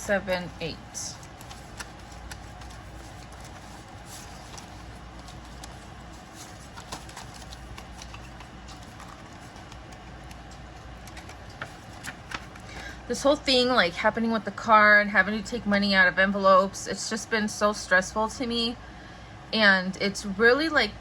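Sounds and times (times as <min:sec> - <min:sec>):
paper banknotes rustling: 0:00.1 - 0:13.0.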